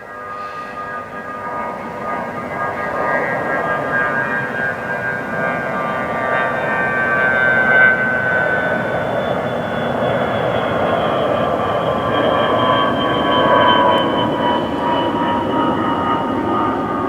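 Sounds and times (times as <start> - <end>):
military jet engines passing: 0.0 - 17.0.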